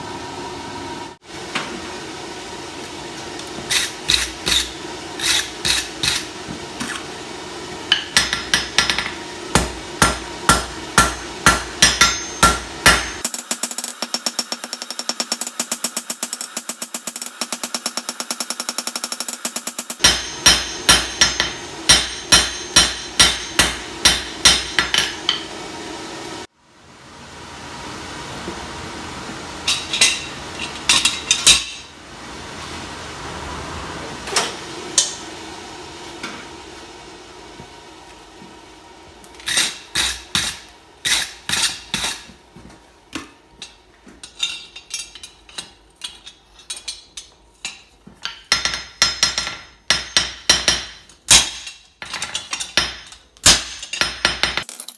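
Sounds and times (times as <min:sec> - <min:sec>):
hammer striking steel on anvil: 0:07.9 - 0:25.6, 0:29.6 - 0:31.9, 0:35.0 - 0:35.3, 0:43.6 - 0:54.7.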